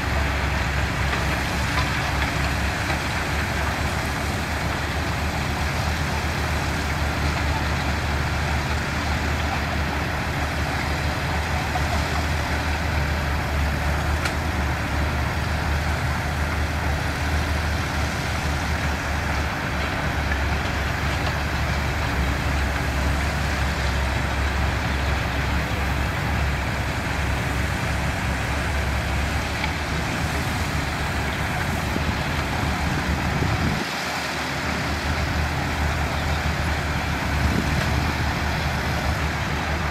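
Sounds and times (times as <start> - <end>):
diesel machinery engines running: 0.0 - 39.9.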